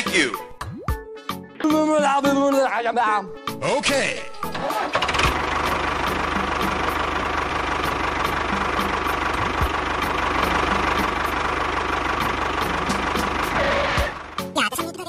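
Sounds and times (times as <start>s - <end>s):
tractor engine idling: 4.2s - 14.7s.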